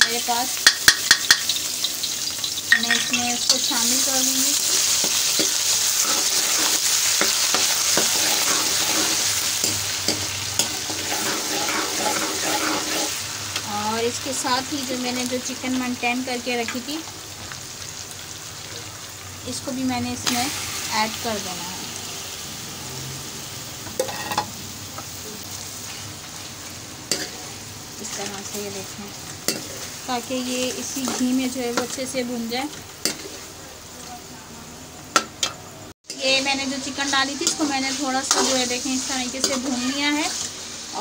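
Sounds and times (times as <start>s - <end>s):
paste sizzling in hot oil: 0.0s - 34.4s, 36.0s - 41.0s
spoon clinking against pan: 0.6s - 1.6s
metal spoon scraping pan: 4.6s - 13.2s, 37.4s - 38.8s.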